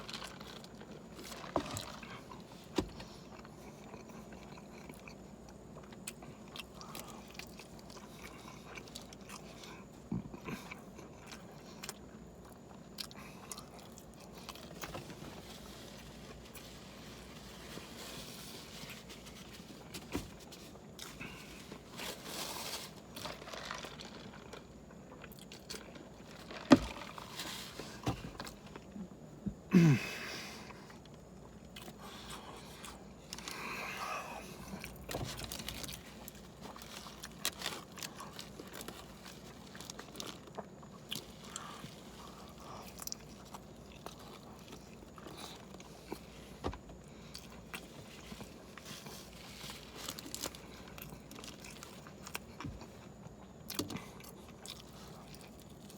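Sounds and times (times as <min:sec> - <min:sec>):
person chewing and biting food: 0:00.0 - 0:29.0, 0:31.1 - 0:55.9.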